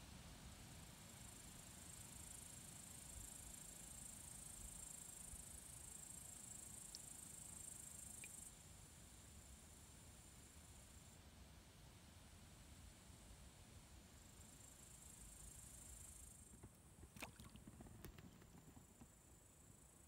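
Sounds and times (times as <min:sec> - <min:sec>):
faint insect chirps: 0:00.0 - 0:20.0
insects trilling: 0:04.1 - 0:08.5.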